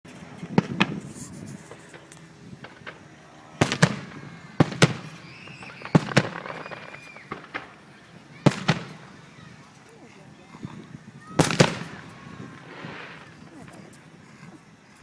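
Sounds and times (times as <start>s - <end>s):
fireworks bangs: 0.1s - 15.0s.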